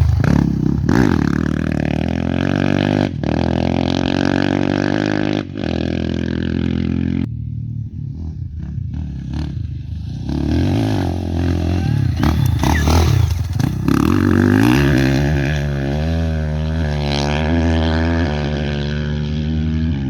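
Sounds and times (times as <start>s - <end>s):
rough engine with clatter: 0.0s - 4.4s, 8.1s - 16.3s
motorcycle engine revving hard: 0.0s - 7.3s, 8.1s - 20.0s.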